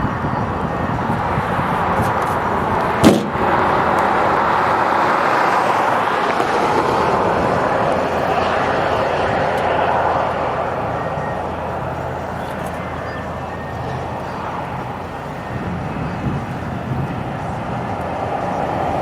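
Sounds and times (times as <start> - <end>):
road and wind noise: 0.0 - 19.0
sharp knock: 3.0 - 3.4.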